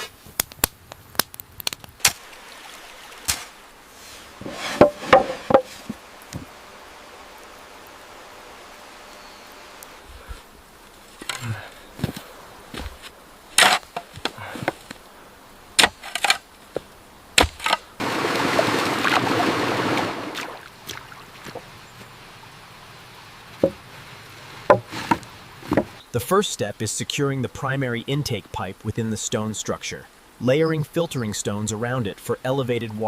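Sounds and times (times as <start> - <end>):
stones knocking together: 4.4 - 6.5, 11.2 - 15.0, 15.8 - 19.6.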